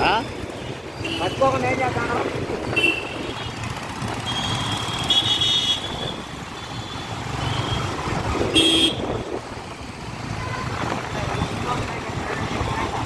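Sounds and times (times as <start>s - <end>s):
busy road traffic: 0.0s - 13.0s
vehicle horns honking: 2.7s - 3.6s, 4.3s - 9.3s.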